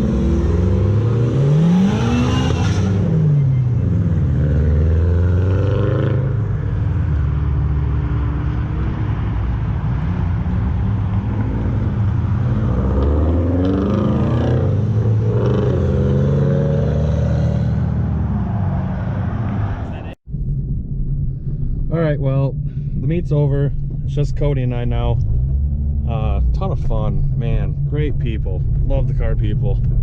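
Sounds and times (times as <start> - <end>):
car engines accelerating hard: 0.0 - 20.2.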